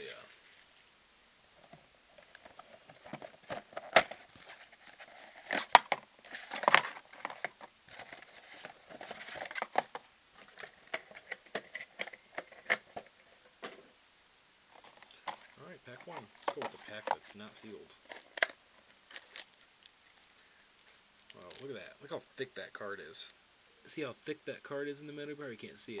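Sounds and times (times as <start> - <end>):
cardboard rustling: 1.6 - 13.9, 14.7 - 19.5
wrapper crinkling: 2.2 - 13.1, 14.7 - 20.2, 20.8 - 21.9.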